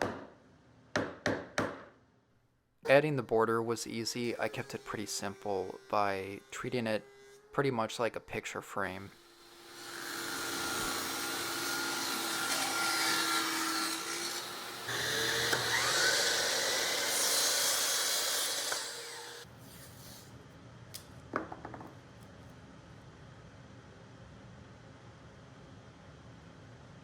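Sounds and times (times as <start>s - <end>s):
power tool cutting wood: 2.9s - 19.5s.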